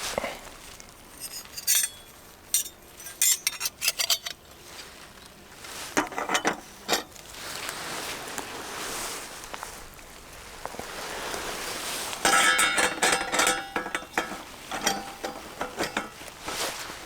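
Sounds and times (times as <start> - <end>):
metal gear clinking and clattering: 1.1 - 4.4, 12.3 - 17.0.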